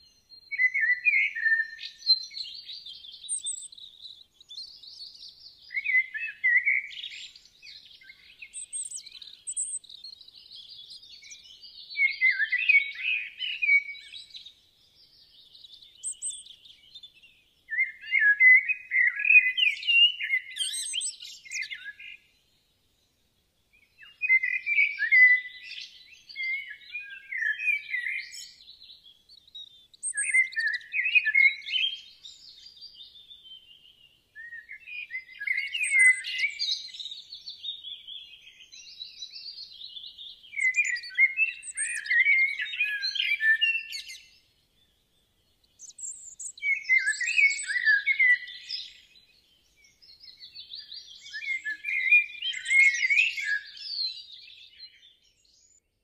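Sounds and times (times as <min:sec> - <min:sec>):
songbird chirps and trills: 0:00.0 - 0:56.0.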